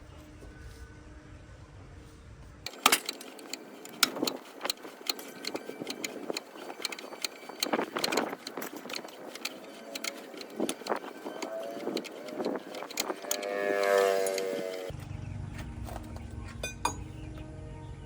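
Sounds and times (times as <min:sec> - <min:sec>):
metallic clinks and knocks: 0:02.7 - 0:14.9.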